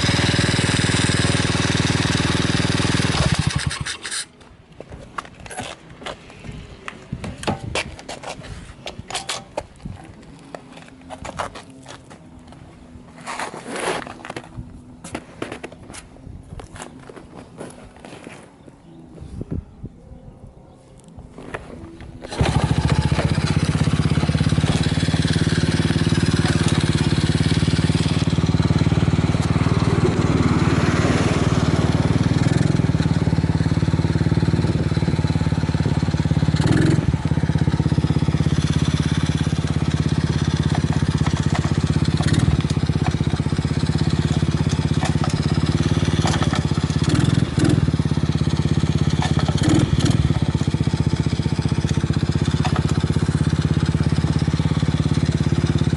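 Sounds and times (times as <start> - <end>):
small engine idling: 0.0 - 4.3, 22.2 - 55.9.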